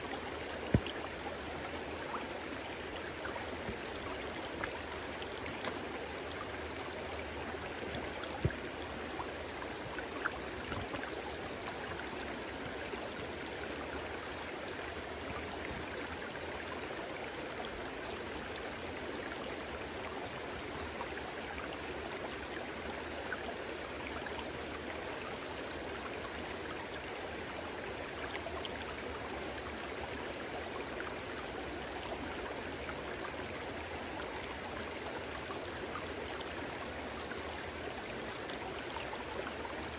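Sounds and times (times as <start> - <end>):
small water splashes: 0.0 - 13.0
stream babbling: 0.0 - 39.9.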